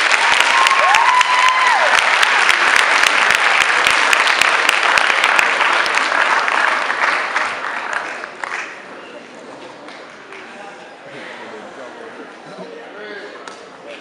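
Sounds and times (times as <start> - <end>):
audience clapping: 0.0 - 8.9.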